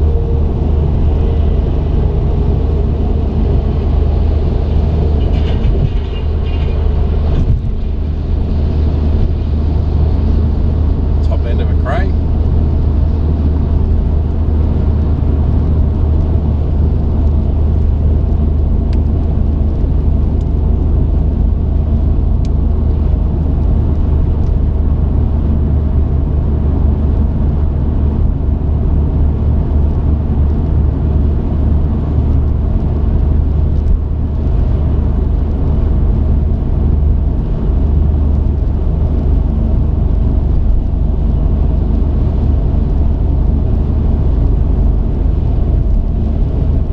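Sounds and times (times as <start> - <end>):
road noise: 0.0 - 46.9
truck engine drone: 0.0 - 46.9.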